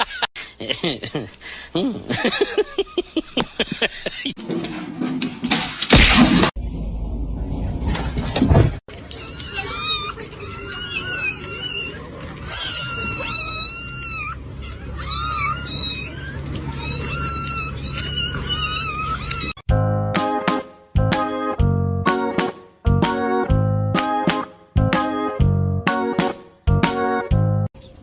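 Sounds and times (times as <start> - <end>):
cat meowing: 9.1 - 19.6.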